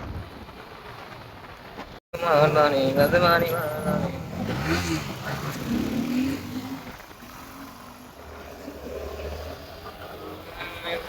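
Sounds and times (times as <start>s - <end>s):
motorcycle engine revving: 2.4s - 10.8s.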